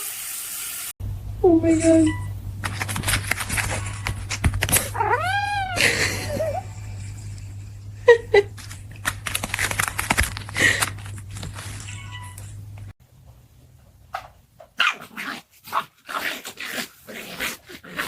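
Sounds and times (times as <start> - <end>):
steady low hum: 1.0 - 13.6
rustling and clicking: 2.6 - 5.0, 8.5 - 12.9
cat meowing: 4.8 - 5.8.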